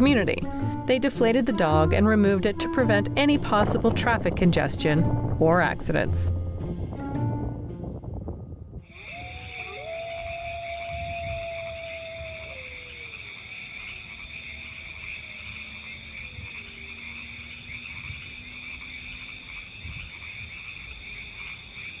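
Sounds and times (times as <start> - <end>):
high-pitched animal calling chorus: 8.9 - 20.0.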